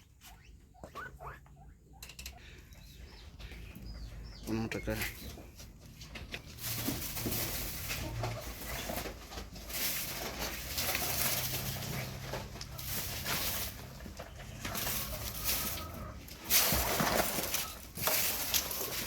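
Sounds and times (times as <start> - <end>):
animal calls: 0.0 - 5.4.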